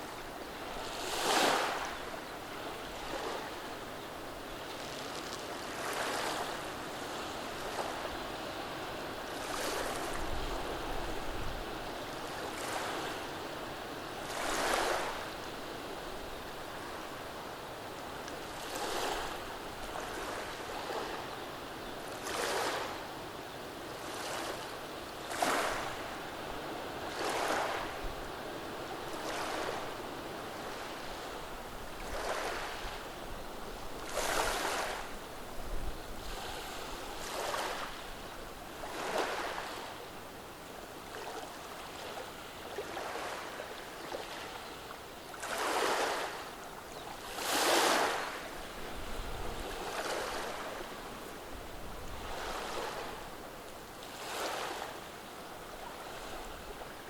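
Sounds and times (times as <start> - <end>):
waves washing over pebbles: 45.4 - 46.4, 47.2 - 48.6.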